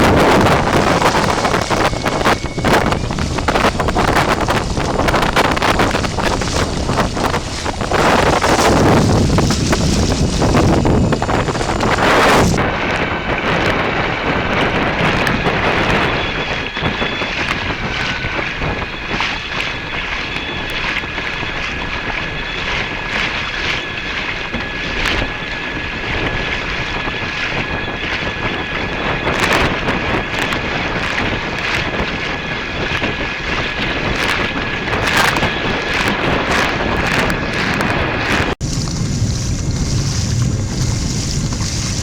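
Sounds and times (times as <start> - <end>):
splashes: 0.0 - 12.6, 16.8 - 42.0
water rushing: 0.0 - 13.0, 33.8 - 42.0
wind buffeting microphone: 0.0 - 42.0.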